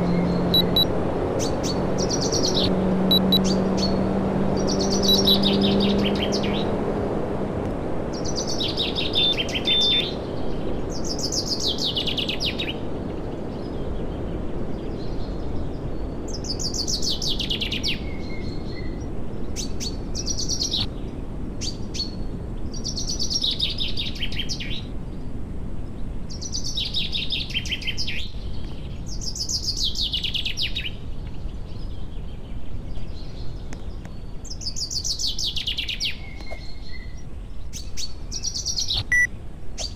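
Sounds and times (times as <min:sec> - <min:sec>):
songbird singing trilled phrase: 0:00.1 - 0:00.8.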